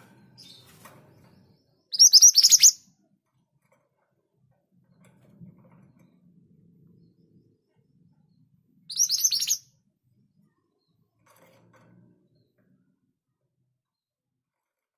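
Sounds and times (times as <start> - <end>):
bird singing high sharp notes: 1.9 - 2.8, 8.9 - 9.6.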